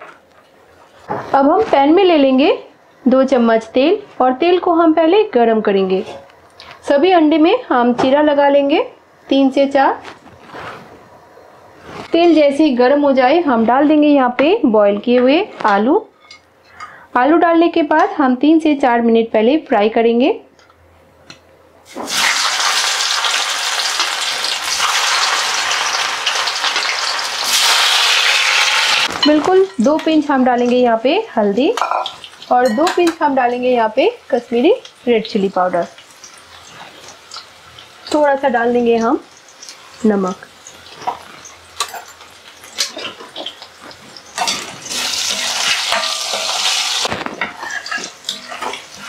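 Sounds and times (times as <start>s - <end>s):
potatoes sizzling in oil: 21.8s - 49.0s
spatula tapping and scraping pan: 41.0s - 46.7s, 47.4s - 49.0s.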